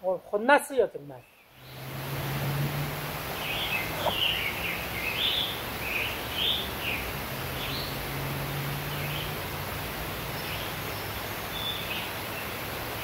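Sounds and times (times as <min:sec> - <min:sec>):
forest background hiss: 0:00.0 - 0:13.0
songbird warbling: 0:01.2 - 0:08.0.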